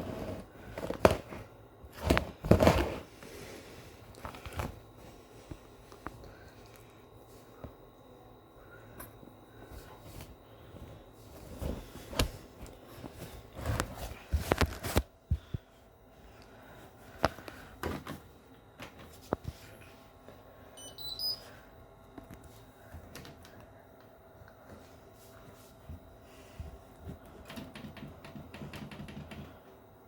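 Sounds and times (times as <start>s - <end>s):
washing machine hum: 0.0s - 30.0s.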